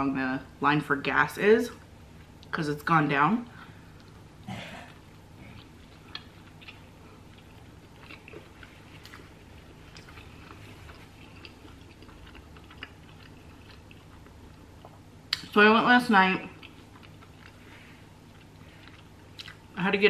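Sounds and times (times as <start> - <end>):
chewing with crunches: 3.6 - 15.6, 16.2 - 19.9.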